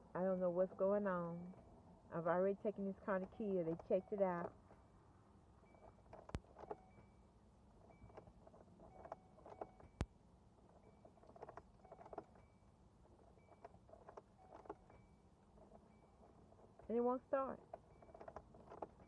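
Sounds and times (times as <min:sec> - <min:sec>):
faint car clicking: 0:02.4 - 0:04.9, 0:05.6 - 0:07.1, 0:07.8 - 0:19.0.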